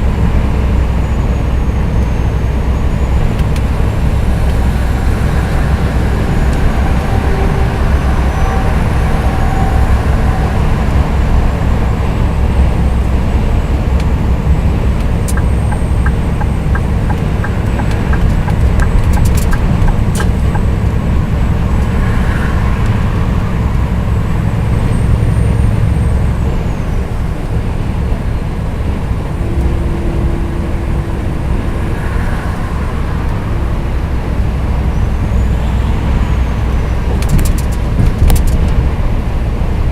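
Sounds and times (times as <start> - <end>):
diesel truck engine running: 0.0 - 39.9
road noise: 0.0 - 39.9
even ticks: 15.0 - 20.8.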